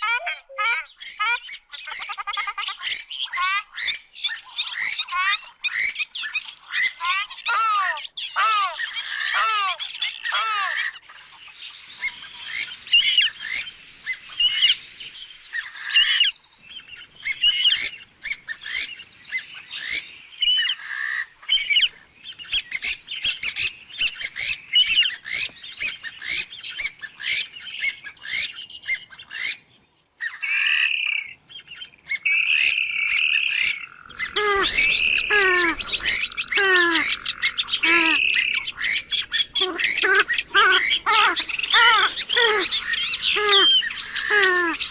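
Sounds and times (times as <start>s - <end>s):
birds chirping and whistling: 0.9s - 44.9s
bird falling calls: 32.4s - 44.9s.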